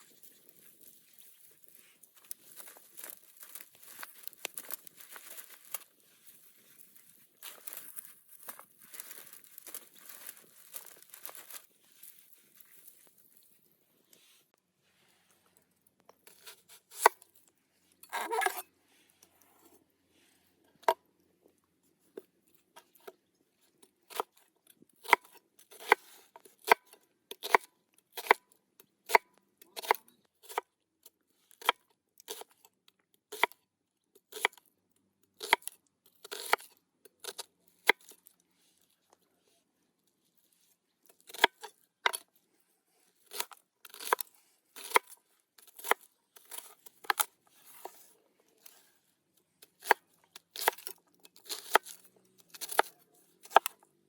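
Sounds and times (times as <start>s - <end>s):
crisp cutting of food: 0.1s - 13.2s.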